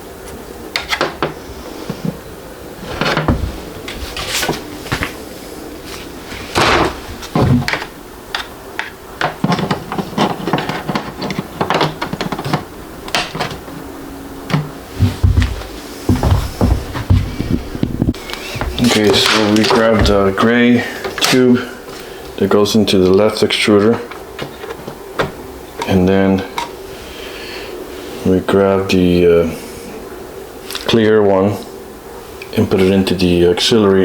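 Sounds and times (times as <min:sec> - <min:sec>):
hands handling parts: 0:05.8 - 0:22.4, 0:23.0 - 0:26.8
packaging rustling: 0:18.2 - 0:20.5.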